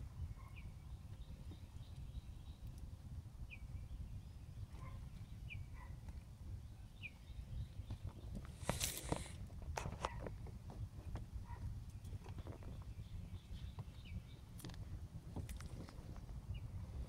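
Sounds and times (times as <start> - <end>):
small bird chirping: 0.0 - 9.4, 11.5 - 14.7
low steady rumble: 0.0 - 17.0.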